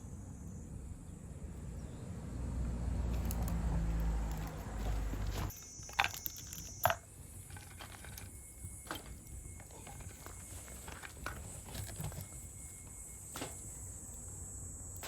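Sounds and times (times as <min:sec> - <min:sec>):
high insect trill: 0:02.9 - 0:15.0.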